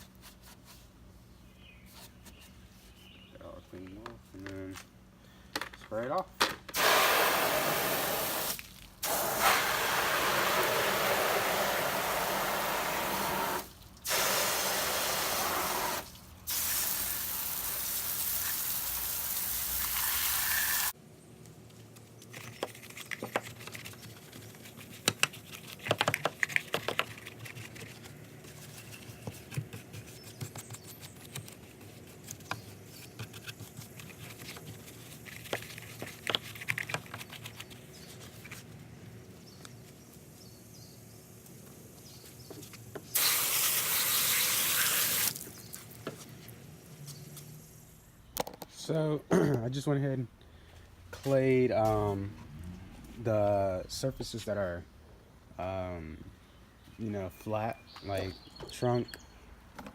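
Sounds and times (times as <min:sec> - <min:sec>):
water jet hissing: 0:06.8 - 0:21.0, 0:43.1 - 0:45.7.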